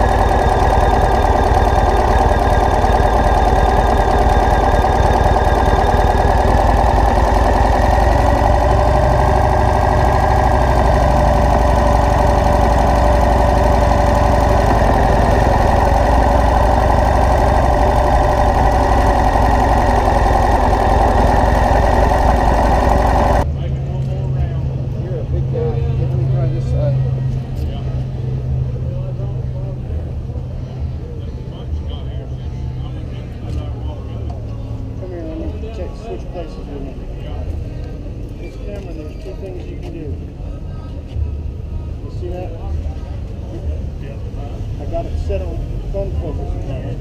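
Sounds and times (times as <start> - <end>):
vehicle engine running: 0.0 - 23.6.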